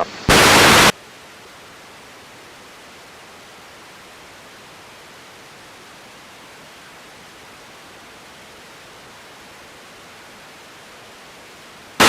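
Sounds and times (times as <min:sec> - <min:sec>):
radio static hiss: 0:00.0 - 0:01.0.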